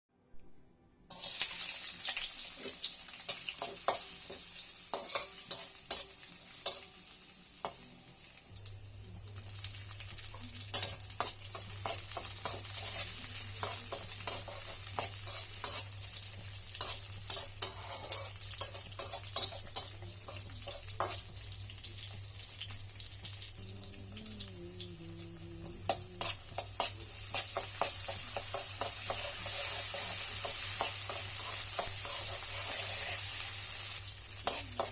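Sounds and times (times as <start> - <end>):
vegetable sizzling in hot oil: 1.1 - 34.9
spatula scraping a pan: 2.5 - 6.8, 10.7 - 16.0, 16.7 - 21.3, 25.9 - 33.6, 34.4 - 34.9.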